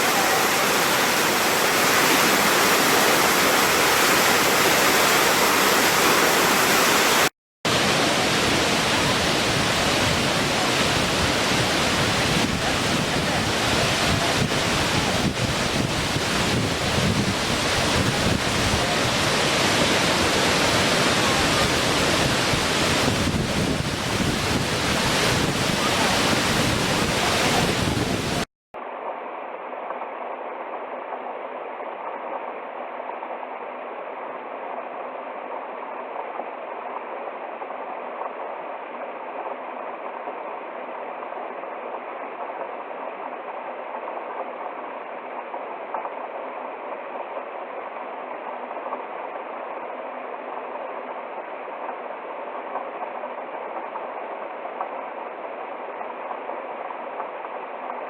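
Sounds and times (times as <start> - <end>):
waterfall roaring: 0.0 - 28.5.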